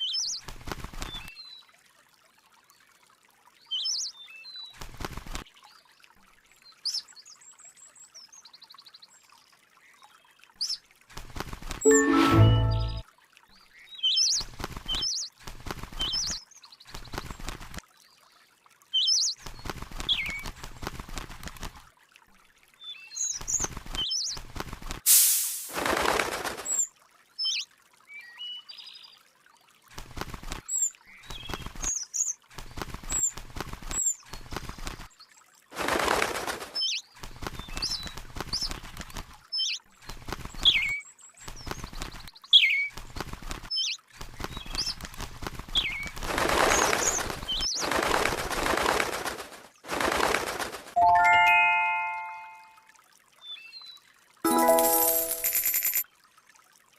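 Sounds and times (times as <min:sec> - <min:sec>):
rustling and wing-flapping: 0:00.3 - 0:01.3, 0:04.8 - 0:05.5, 0:11.1 - 0:12.0, 0:14.3 - 0:17.8, 0:19.4 - 0:21.9, 0:23.4 - 0:26.9, 0:29.9 - 0:51.4.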